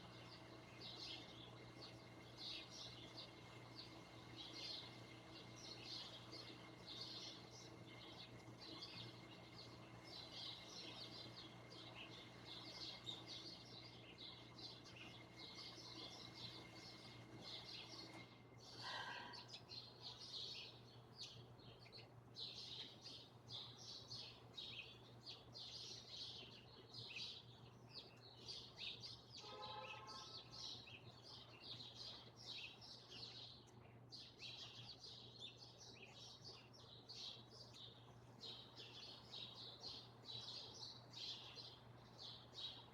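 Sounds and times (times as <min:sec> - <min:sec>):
steady low hum: 0:00.0 - 0:25.2
small birds chirping: 0:00.0 - 0:42.9.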